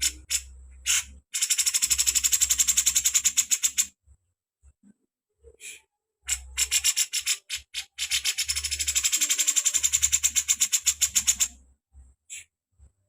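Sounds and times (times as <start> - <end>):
bird rattling call: 0.0 - 3.9, 6.3 - 11.5.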